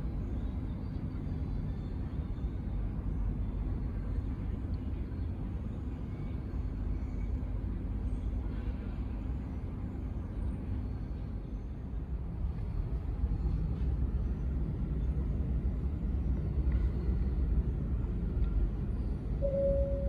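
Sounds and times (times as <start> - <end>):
low outdoor rumble: 0.0 - 20.0
two short steady tones: 19.4 - 20.0.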